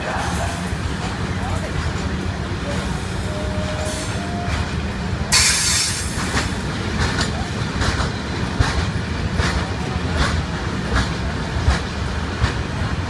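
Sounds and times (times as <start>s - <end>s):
train passing rumble: 0.0s - 13.0s
train wheels clicking over rail joints: 0.0s - 13.0s.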